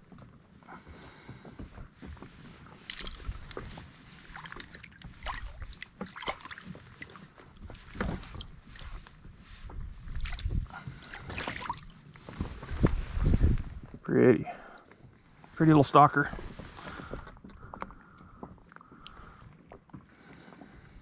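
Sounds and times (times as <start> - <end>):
water slapping against boat hull: 2.4 - 14.0.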